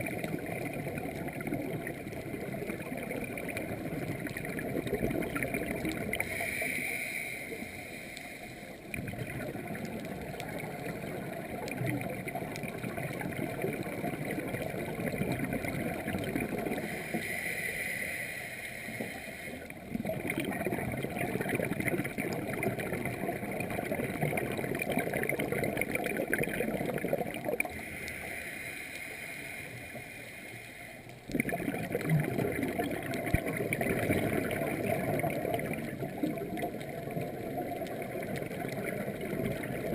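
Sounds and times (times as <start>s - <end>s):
exhaust bubbles bubbling: 0.0s - 6.3s, 8.9s - 16.9s, 19.7s - 27.7s, 31.3s - 39.9s
regulator hissing inhale: 6.1s - 8.9s, 16.8s - 19.8s, 27.6s - 31.2s.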